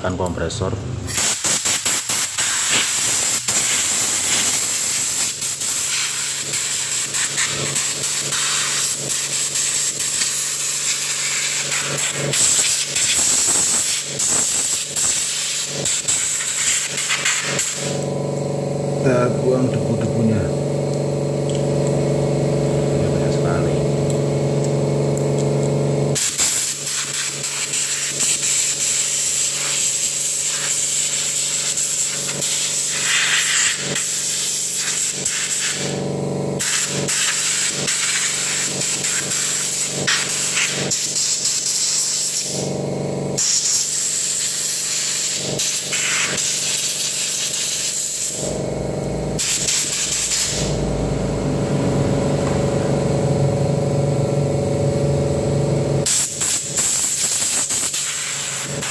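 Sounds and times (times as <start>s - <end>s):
steady hum: 0.0s - 58.9s
compressed air hissing: 1.1s - 18.7s, 26.1s - 42.8s, 43.4s - 51.0s, 56.0s - 58.9s.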